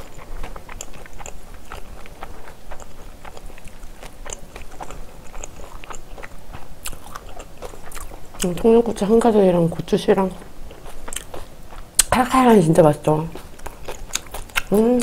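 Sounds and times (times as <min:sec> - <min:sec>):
person chewing food: 0:00.0 - 0:08.7, 0:09.7 - 0:12.2, 0:13.2 - 0:15.0.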